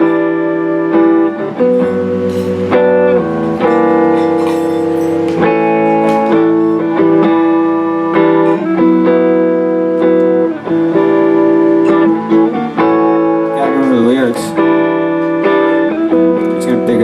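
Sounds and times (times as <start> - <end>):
guitar chords: 0.0 - 17.0.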